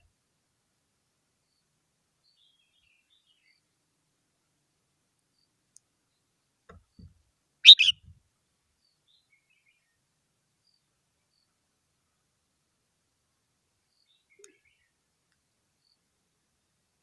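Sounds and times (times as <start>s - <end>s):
bird call: 7.6s - 8.0s.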